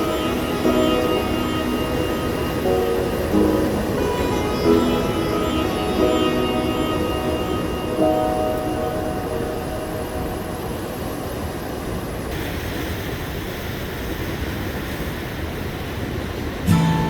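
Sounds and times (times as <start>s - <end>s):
music: 0.0s - 11.3s, 16.7s - 17.0s.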